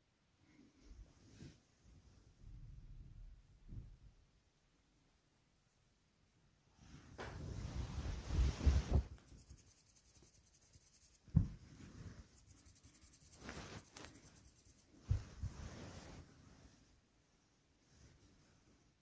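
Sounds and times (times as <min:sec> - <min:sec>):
soft rubbing and rustling: 0:00.5 - 0:02.4, 0:06.8 - 0:19.0.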